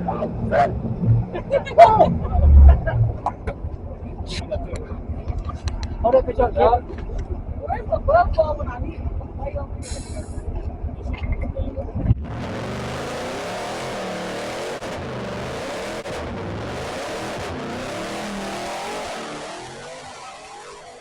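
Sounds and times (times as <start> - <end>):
loud rushing noise: 0.0 - 3.8
car engine revving: 0.0 - 21.0.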